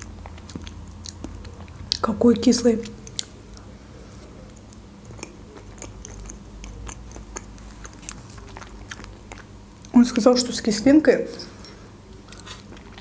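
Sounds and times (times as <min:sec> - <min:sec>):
wet chewing and smacking: 0:00.0 - 0:02.1, 0:02.7 - 0:03.7, 0:04.5 - 0:10.0, 0:12.2 - 0:13.0
small mouth clicks: 0:04.5 - 0:10.0.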